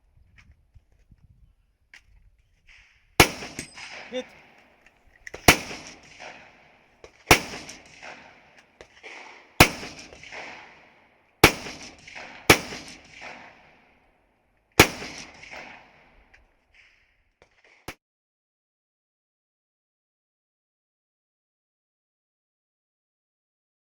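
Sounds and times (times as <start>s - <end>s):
rifle shots with echo: 2.7s - 18.0s.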